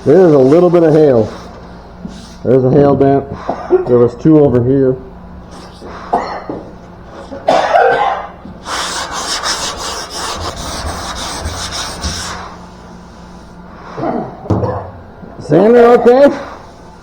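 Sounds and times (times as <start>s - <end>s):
sandpaper scratching on metal panel: 8.6s - 12.6s.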